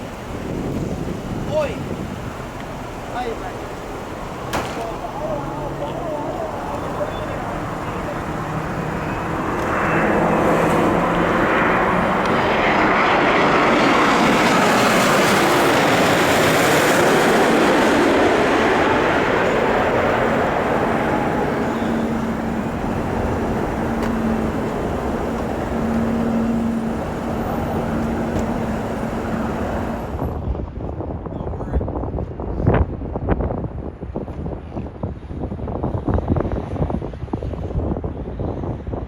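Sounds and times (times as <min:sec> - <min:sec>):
jet airliner passing: 0:00.0 - 0:30.4.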